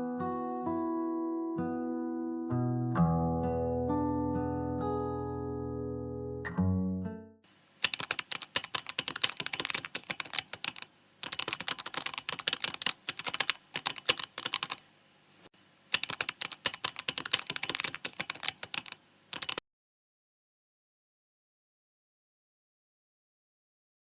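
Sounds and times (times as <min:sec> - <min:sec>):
computer keyboard typing: 0:07.8 - 0:14.8, 0:15.9 - 0:19.6.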